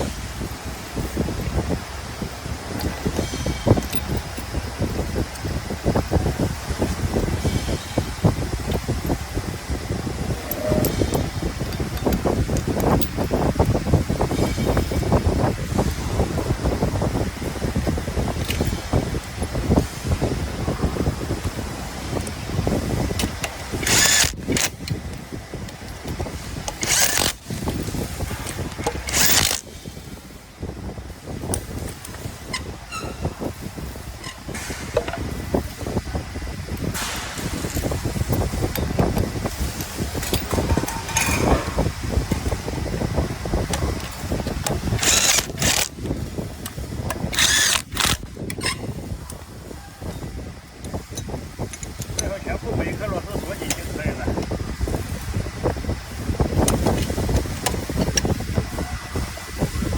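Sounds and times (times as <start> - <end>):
steady low rumble: 0.0 - 59.9
metal parts clattering: 23.1 - 25.0, 25.9 - 29.7, 39.6 - 41.9, 44.0 - 46.0, 47.3 - 48.8
power tool bursts: 23.6 - 24.8, 26.7 - 27.6, 28.8 - 29.7, 44.8 - 46.0, 47.3 - 48.3.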